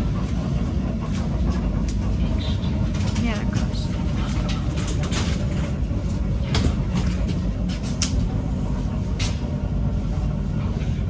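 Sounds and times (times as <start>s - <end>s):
train interior rumble: 0.0s - 11.0s.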